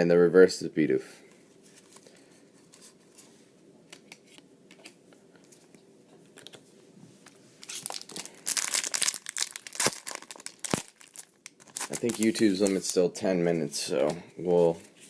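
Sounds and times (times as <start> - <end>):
foil wrapper tearing and crinkling: 7.6 - 13.0
trading cards being handled: 11.6 - 13.0.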